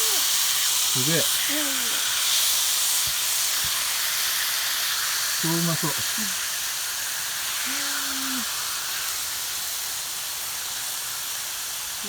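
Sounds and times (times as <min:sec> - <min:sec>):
meat sizzling over fire: 0:00.0 - 0:12.0
person humming: 0:07.7 - 0:08.5.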